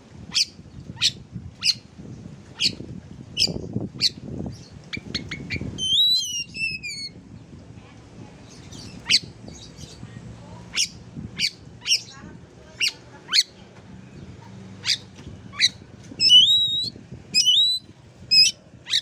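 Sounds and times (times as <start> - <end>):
bird sharp chirps: 15.6 - 19.0
bird gliding whistled notes: 16.2 - 19.0.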